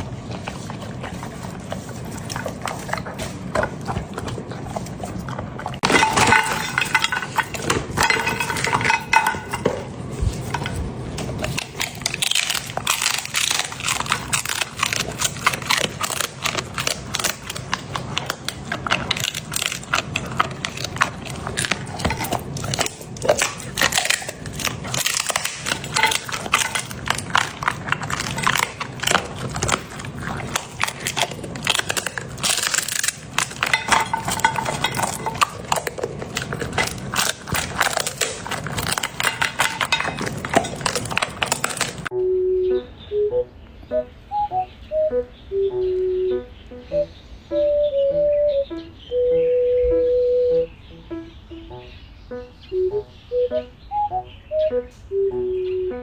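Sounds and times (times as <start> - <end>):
dog chewing bone: 0.0 - 42.1.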